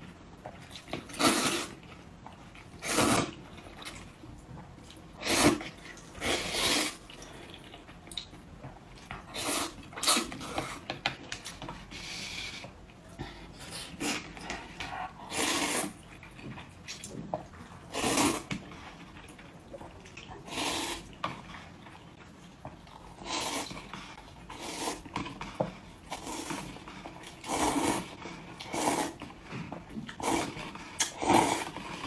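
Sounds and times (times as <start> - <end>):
person slurping and chewing: 0.7 - 1.9, 2.7 - 4.0, 5.1 - 7.8, 13.6 - 17.0, 17.7 - 22.0, 22.8 - 32.0.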